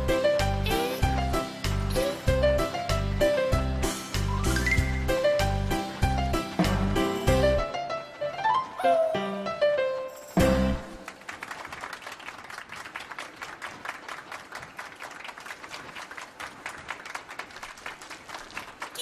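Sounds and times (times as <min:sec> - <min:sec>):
crowd clapping: 0:10.9 - 0:19.0.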